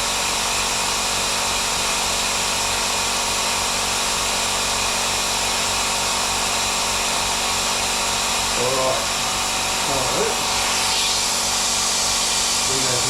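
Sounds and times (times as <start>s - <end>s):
motor humming: 5.3s - 13.0s
torch flame hissing: 8.5s - 13.0s.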